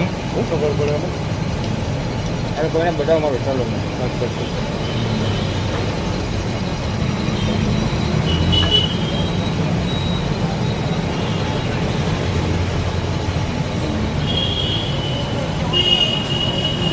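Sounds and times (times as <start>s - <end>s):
high-pitched machine whines: 6.6s - 16.9s
boring machine humming: 7.1s - 16.9s.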